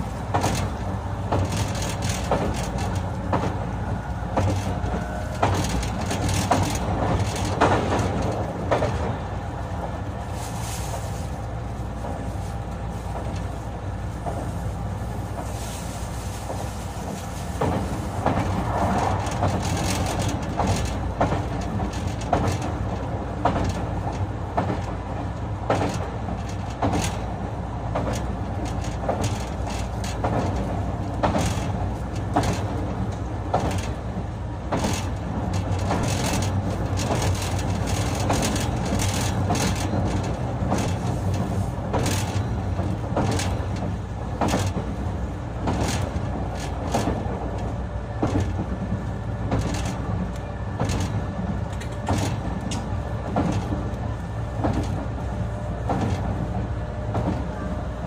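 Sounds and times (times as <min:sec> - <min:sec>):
electric train rumble and hum: 0:00.0 - 0:58.0
wheels clacking over rail joints: 0:00.0 - 0:58.0.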